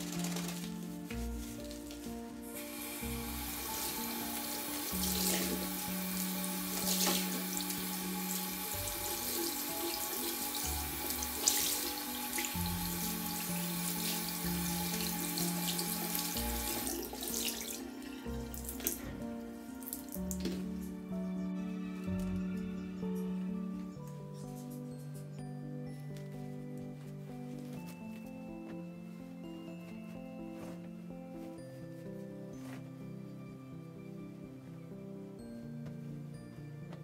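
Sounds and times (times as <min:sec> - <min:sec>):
water tap running into sink: 0:02.7 - 0:19.0.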